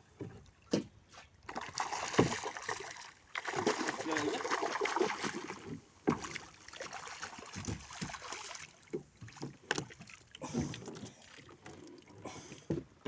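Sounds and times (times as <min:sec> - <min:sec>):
knocks and thumps on boat: 0:01.6 - 0:02.8, 0:03.4 - 0:11.8, 0:12.5 - 0:13.0.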